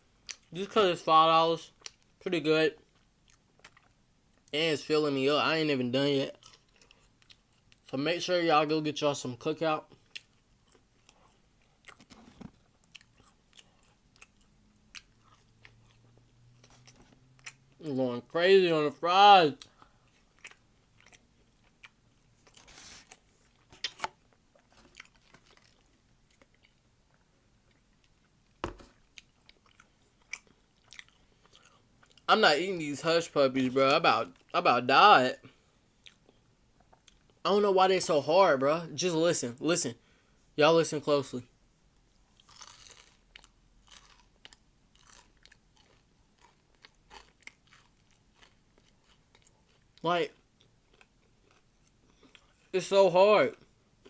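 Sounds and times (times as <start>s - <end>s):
chewing fries: 0.2s - 4.6s, 5.8s - 8.3s, 9.8s - 18.9s, 19.5s - 32.3s, 35.4s - 37.4s, 42.2s - 52.7s.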